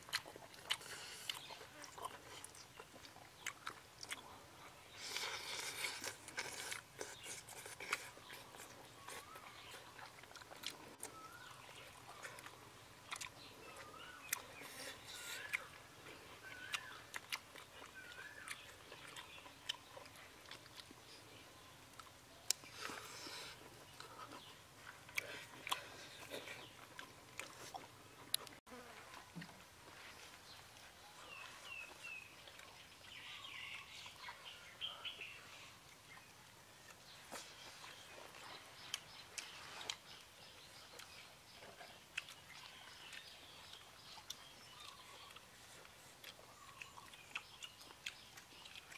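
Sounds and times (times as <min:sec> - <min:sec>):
person biting and chewing: 0:00.0 - 0:04.3, 0:04.9 - 0:15.7, 0:16.6 - 0:21.0
faint chewing: 0:00.0 - 0:48.9.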